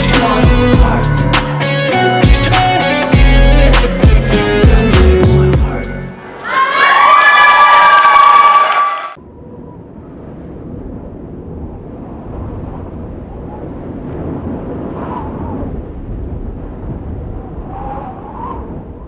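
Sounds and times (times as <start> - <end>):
crowd cheering and chatter: 5.8 - 9.2.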